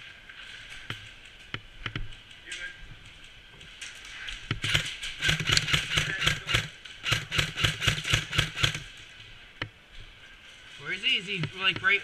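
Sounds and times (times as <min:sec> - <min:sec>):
airsoft gun firing: 0:04.6 - 0:08.9.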